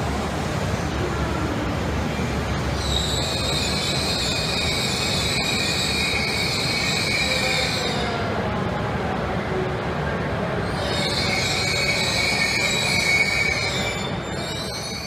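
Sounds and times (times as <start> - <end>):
train running noise: 0.0 - 15.0
high-pitched wheel squeal: 2.8 - 8.2, 10.6 - 15.0.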